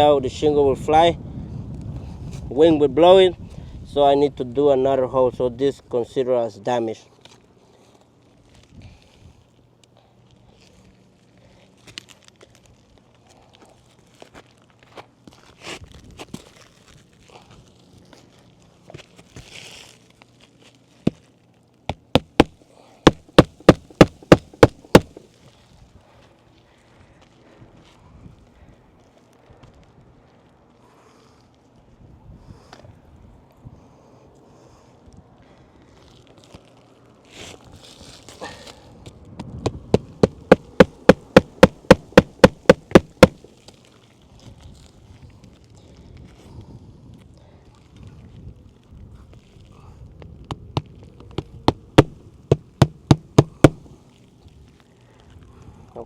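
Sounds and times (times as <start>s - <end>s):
soft rustle: 7.0s - 21.9s, 23.5s - 39.2s, 40.0s - 51.6s
hammer driving nails into shingles: 21.9s - 25.2s, 39.7s - 43.4s, 50.5s - 53.9s.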